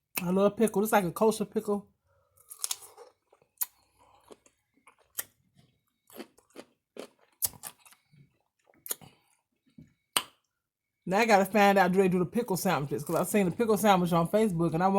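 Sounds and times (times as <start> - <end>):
crunchy pickle chewing: 2.4 - 9.4.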